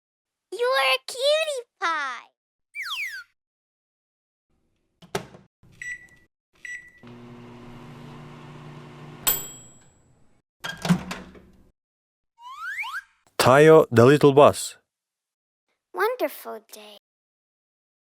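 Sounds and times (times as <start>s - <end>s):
keypad beeps: 5.8s - 7.0s
microwave humming: 6.8s - 9.9s
ringing ding: 9.2s - 10.0s.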